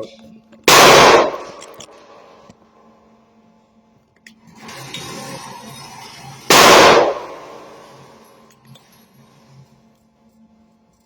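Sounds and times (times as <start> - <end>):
loud gunshot: 0.7 - 1.6, 6.5 - 7.7.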